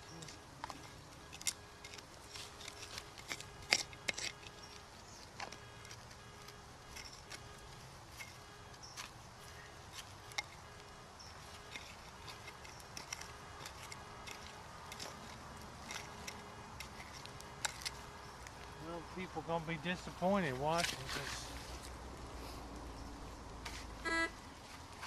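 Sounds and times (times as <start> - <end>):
digging tools clicking on stones: 0.0 - 9.2, 9.9 - 18.7
faint steady hiss: 0.0 - 25.0.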